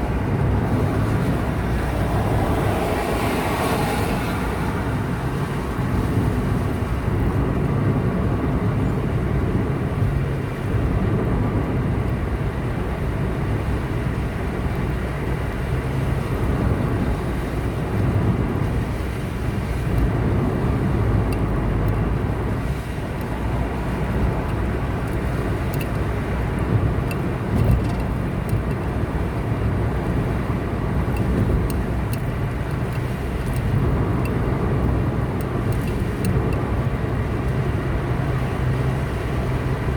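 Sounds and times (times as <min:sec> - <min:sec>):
car driving on highway: 0:00.0 - 0:39.9
faint clicks: 0:24.4 - 0:26.1.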